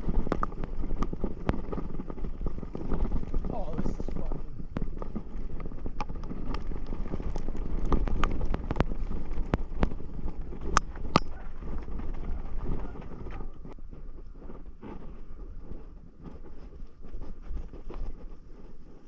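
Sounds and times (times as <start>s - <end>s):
sharp clicks and knocks: 0.0s - 13.8s
wind rumbling on microphone: 0.0s - 19.0s.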